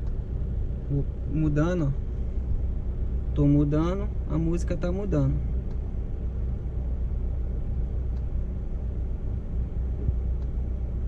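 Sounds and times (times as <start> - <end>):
car engine idling: 0.0 - 11.0
light click: 8.1 - 8.3, 10.4 - 10.6.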